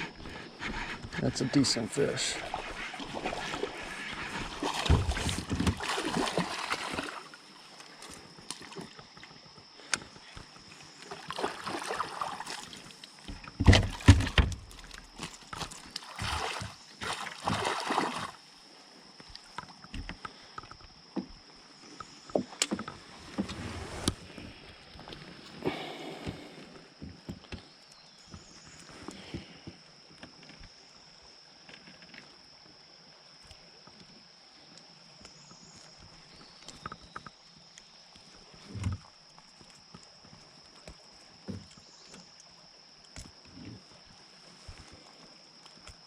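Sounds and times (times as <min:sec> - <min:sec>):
water splashing: 0:00.0 - 0:09.0, 0:10.3 - 0:18.5
knocks against kayak: 0:13.3 - 0:14.7.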